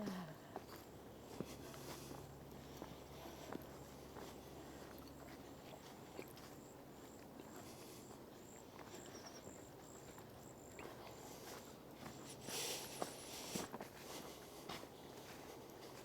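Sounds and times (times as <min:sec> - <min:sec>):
soft footsteps on a trail: 0:00.0 - 0:16.0.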